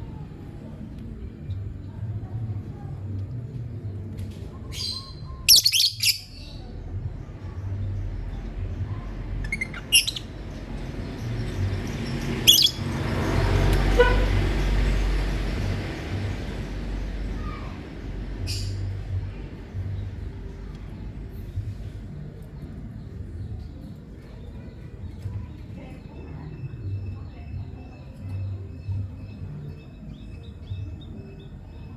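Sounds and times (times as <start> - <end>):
low background rumble: 0.0 - 31.9
lovebird chirping: 4.8 - 6.7, 9.3 - 14.0.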